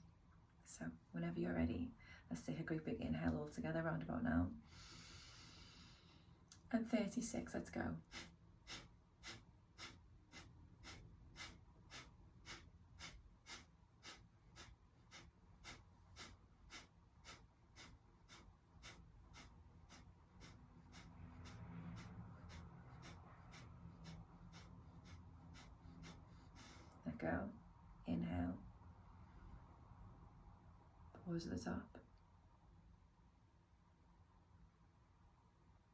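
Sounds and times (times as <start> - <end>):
forceful exhales through the nose: 8.1 - 27.0.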